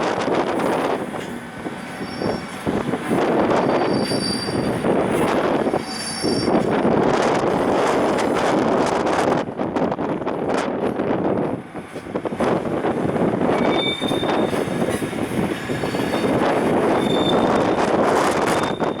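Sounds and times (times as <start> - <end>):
high wheel squeals: 1.8 - 6.7, 13.6 - 19.0.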